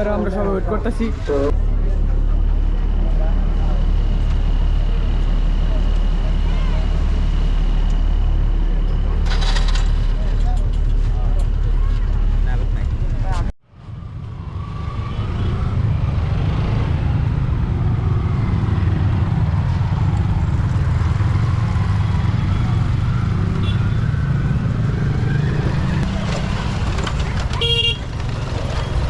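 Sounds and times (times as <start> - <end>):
vehicle horn beep: 23.6 - 24.0, 27.6 - 28.0.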